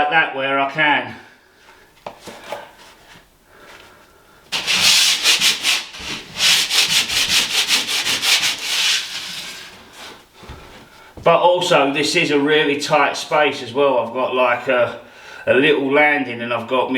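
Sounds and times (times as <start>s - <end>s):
sandpaper scratching: 4.6s - 10.2s.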